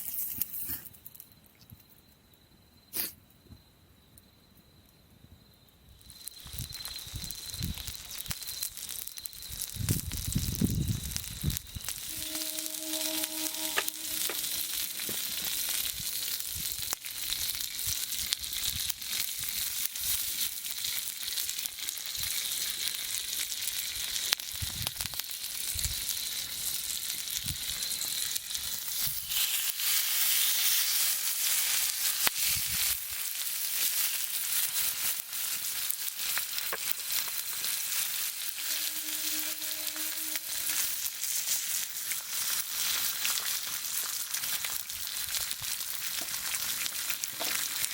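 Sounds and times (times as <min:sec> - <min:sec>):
meat sizzling over campfire: 0:05.9 - 0:47.9.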